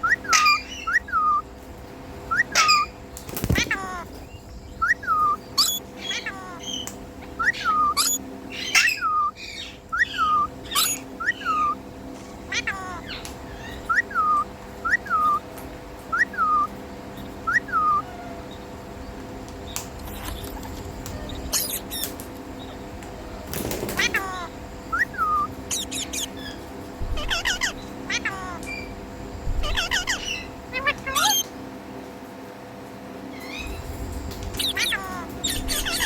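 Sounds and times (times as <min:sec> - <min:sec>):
parrot whistled calls: 0:00.0 - 0:01.5, 0:02.3 - 0:03.0, 0:04.7 - 0:11.8, 0:12.5 - 0:15.5, 0:16.1 - 0:16.8, 0:17.4 - 0:18.6, 0:20.1 - 0:22.1, 0:24.0 - 0:29.0, 0:29.6 - 0:31.5, 0:34.6 - 0:36.0
sharp high chirps: 0:25.0 - 0:26.4.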